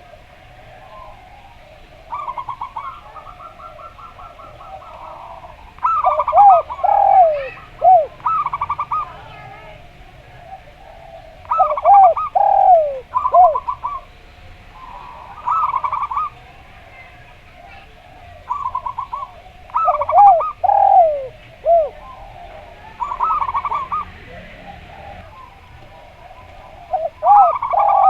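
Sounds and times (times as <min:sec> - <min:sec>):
low drooping dove coos: 0:00.0 - 0:28.0
stuttering high dove coos: 0:02.0 - 0:09.2, 0:10.4 - 0:14.0, 0:18.5 - 0:28.0.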